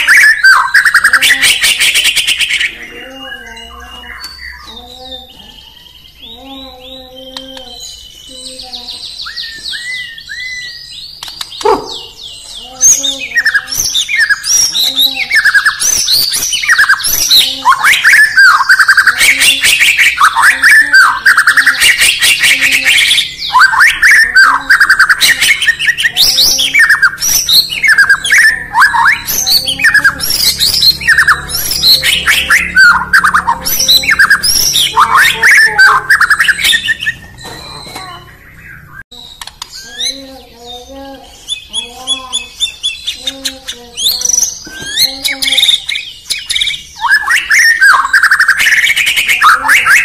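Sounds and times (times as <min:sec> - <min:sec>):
songbird whistling song: 0:00.0 - 0:50.0.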